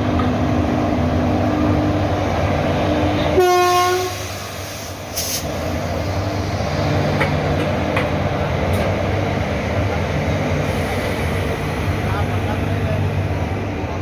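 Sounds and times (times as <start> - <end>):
train running hum: 0.0 - 14.0
train horn blast: 3.3 - 4.4
brief hiss: 4.2 - 5.6.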